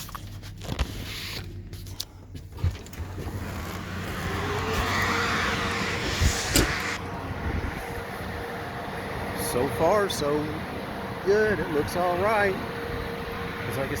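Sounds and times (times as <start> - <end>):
hiss: 3.4 - 7.0.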